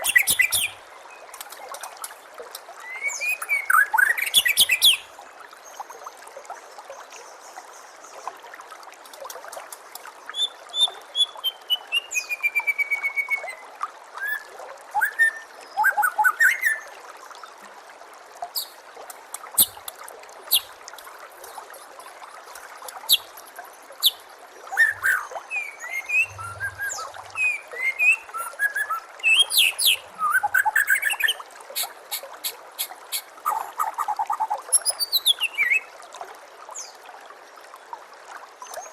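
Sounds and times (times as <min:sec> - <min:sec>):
bird singing whistled phrases: 0:00.0 - 0:00.8, 0:02.8 - 0:05.0, 0:10.4 - 0:13.6, 0:14.2 - 0:16.9, 0:24.0 - 0:31.4, 0:34.8 - 0:35.9
running water trickling: 0:00.0 - 0:38.9.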